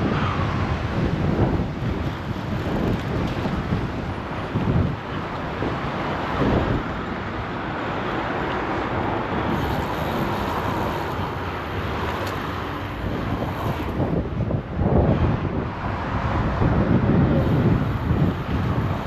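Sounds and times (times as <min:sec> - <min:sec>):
passing road traffic: 0:00.0 - 0:19.0
wind buffeting microphone: 0:00.0 - 0:19.0.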